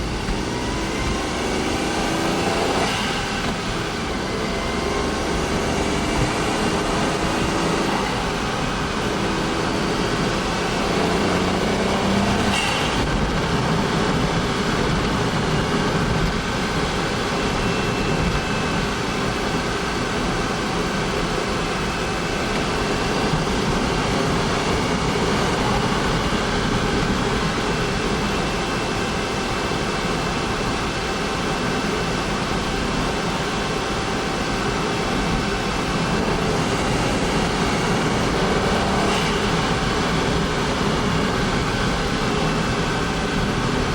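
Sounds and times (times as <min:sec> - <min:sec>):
car engine droning: 0:00.0 - 0:43.9
faint thin high tone: 0:17.3 - 0:19.2.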